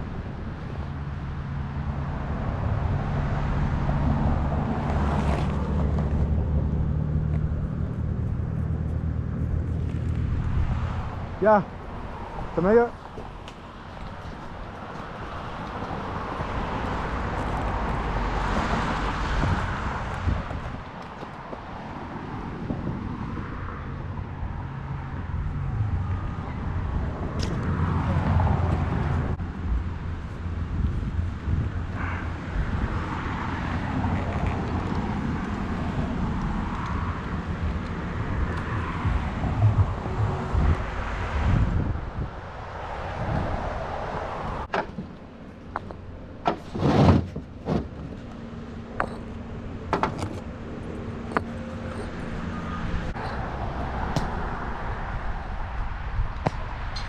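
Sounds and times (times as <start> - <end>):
heavy engine humming: 44.7 - 55.8.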